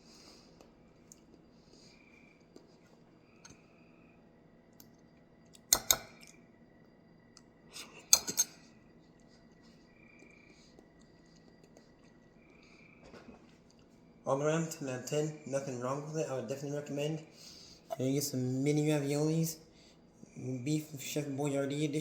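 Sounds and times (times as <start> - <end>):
sharp clicks: 5.6 - 6.1
soft repeated chirps: 8.6 - 13.0.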